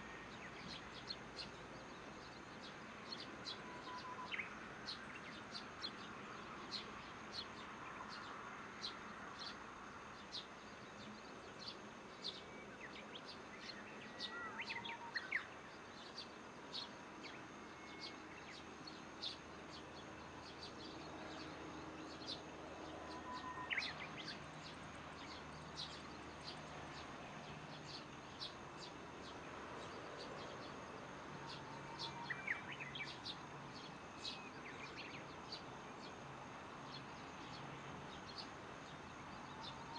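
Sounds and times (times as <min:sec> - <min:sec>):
faint insect hum: 0:00.0 - 0:39.9
rising bird call: 0:03.6 - 0:04.4, 0:23.0 - 0:24.0.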